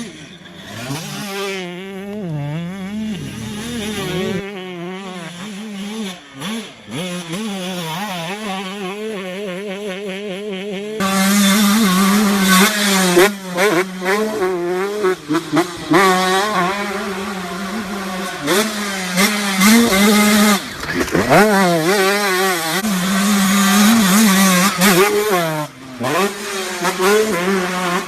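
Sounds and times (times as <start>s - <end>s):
motocross bike engines revving: 0.0s - 28.0s.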